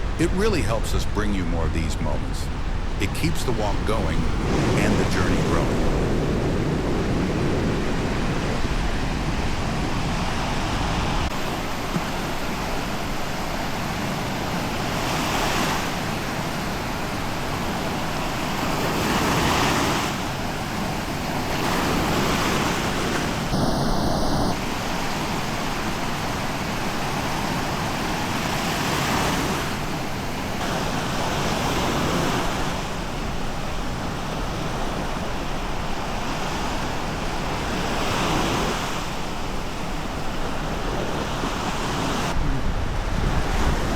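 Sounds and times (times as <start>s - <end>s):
small waves breaking on shore: 0.0s - 43.9s
wind on microphone: 2.0s - 11.3s, 21.6s - 24.8s, 39.9s - 43.9s.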